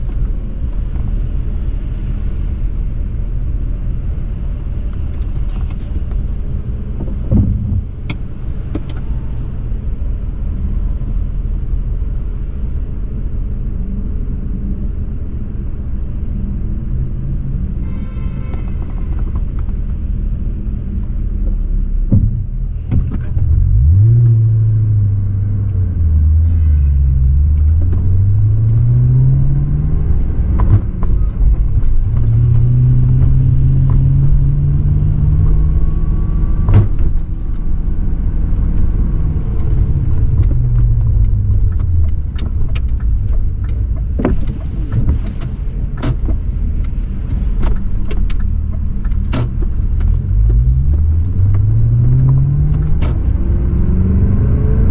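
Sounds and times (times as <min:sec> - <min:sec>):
car engine exhaust revving: 0:23.4 - 0:54.9.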